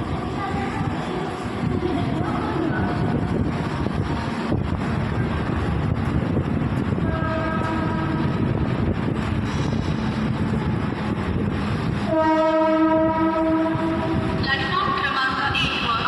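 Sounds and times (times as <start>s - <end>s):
electric train rumbling: 0.0s - 16.0s
train horn blasts: 7.0s - 8.4s, 12.0s - 14.4s.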